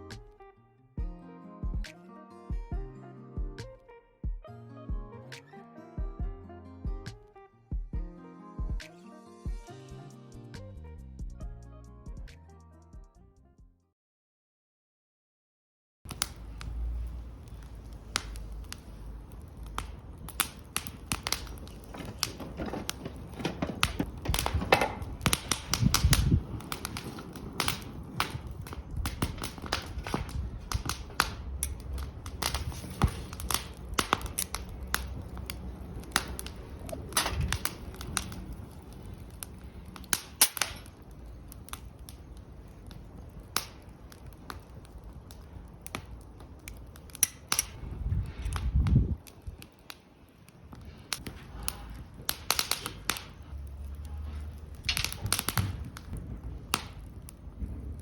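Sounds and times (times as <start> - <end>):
low rumble: 16.1 - 40.2, 47.6 - 49.7
fire popping: 16.1 - 58.0
wood fire crackling: 16.1 - 58.0.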